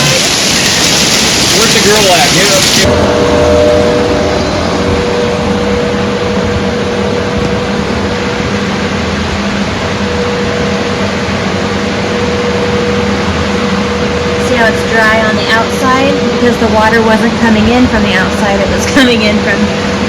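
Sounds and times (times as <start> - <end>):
electric fan whirring: 0.0 - 20.0.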